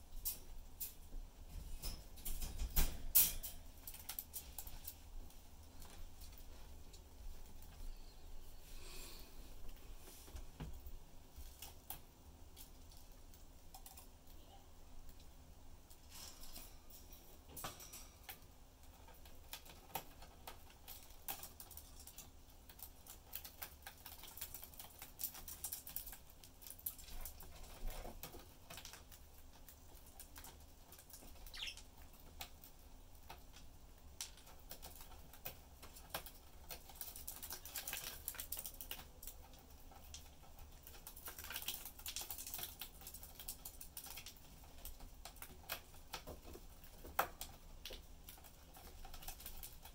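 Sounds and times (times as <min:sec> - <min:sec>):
beaks and claws clicking and tapping: 0:00.1 - 0:08.1, 0:09.6 - 0:49.9
budgerigar chirp: 0:31.5 - 0:31.8.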